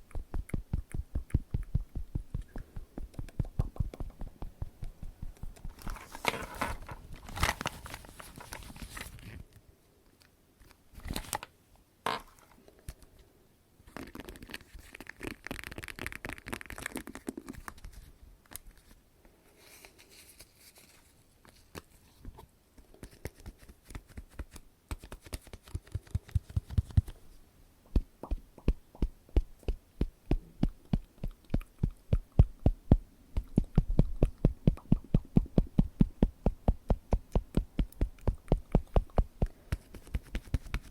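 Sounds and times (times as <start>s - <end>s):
rustling: 0.1s - 9.6s, 13.9s - 22.4s
crackly handling: 4.8s - 11.5s.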